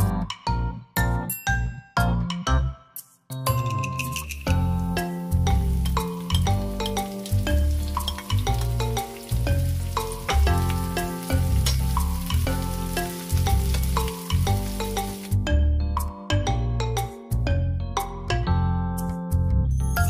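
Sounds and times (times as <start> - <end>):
music with pulsing bass: 4.5 - 20.0
vegetables sizzling in oil: 4.7 - 15.4.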